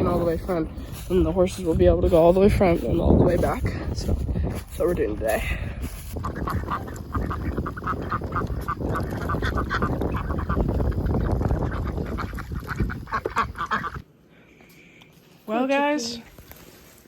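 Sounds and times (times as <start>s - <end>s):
steady low rumble: 0.0s - 14.0s
ducks quacking: 6.1s - 14.0s.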